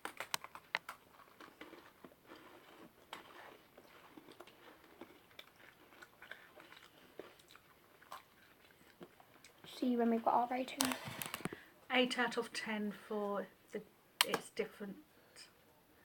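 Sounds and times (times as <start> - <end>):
cookies crunching: 0.0 - 9.7
people chewing: 0.0 - 9.7.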